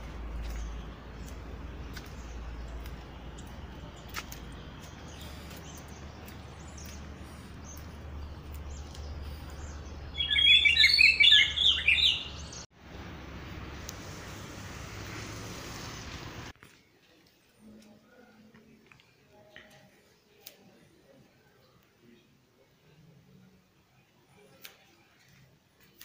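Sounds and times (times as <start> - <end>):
birds chirping: 0.0 - 12.7.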